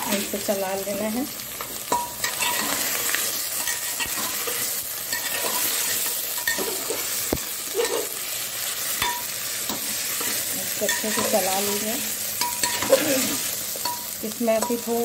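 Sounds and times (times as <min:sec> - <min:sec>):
vegetables sizzling in oil: 0:00.0 - 0:15.0
spoon scraping and knocking pot: 0:01.9 - 0:08.1.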